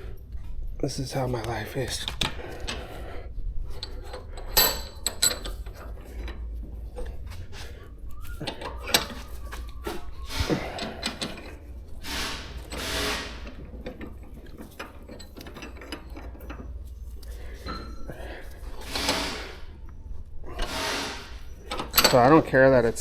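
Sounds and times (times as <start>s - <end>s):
metal bicycle parts clicking: 3.7s - 19.4s.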